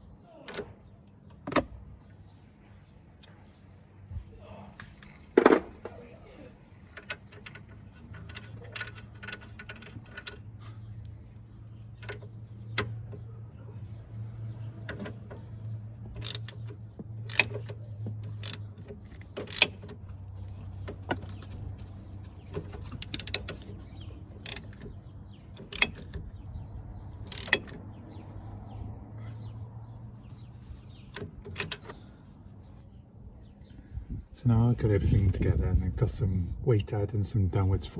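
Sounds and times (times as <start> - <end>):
tools and metal parts clinking: 6.8 - 13.8, 14.8 - 28.2, 30.3 - 32.1.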